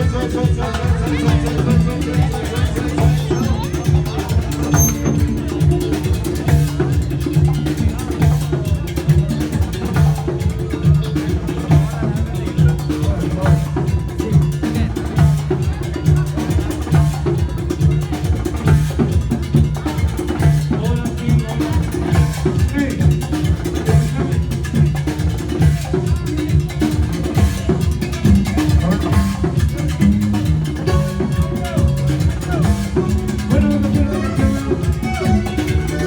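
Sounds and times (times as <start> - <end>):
band playing instrumental: 0.0 - 36.0
drum beat: 0.0 - 36.0
repeating bass notes: 28.2 - 36.0.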